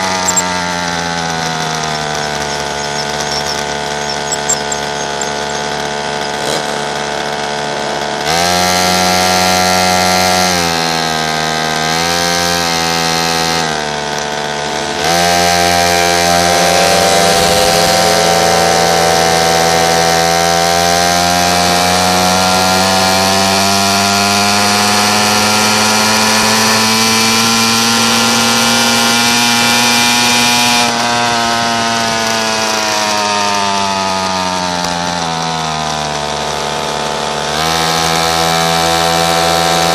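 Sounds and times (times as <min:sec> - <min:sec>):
small motorbike engine revving: 0:00.0 - 0:39.9.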